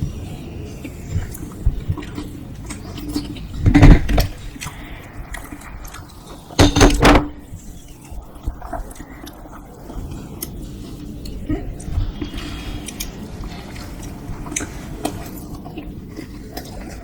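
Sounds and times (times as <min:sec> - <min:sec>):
crunching crisp food: 0:08.0 - 0:17.0.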